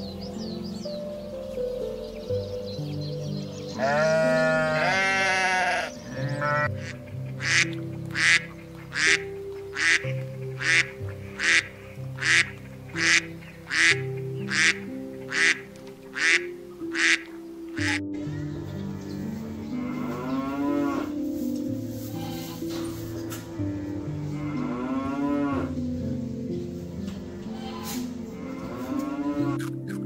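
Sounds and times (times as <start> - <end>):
soft piano music: 0.0 - 30.0
sheep bleating: 3.8 - 7.6
duck quacking raspily: 3.9 - 18.0.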